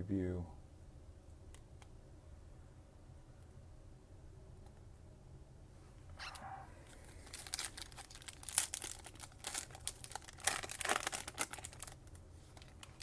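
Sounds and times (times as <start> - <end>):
foil wrapper crinkling and tearing: 7.1 - 13.0.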